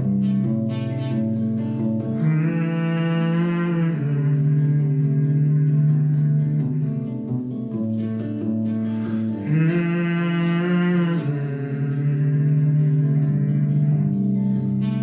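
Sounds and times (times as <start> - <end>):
acoustic guitar playing: 0.0 - 15.0
long held note: 2.2 - 7.0, 9.1 - 15.0.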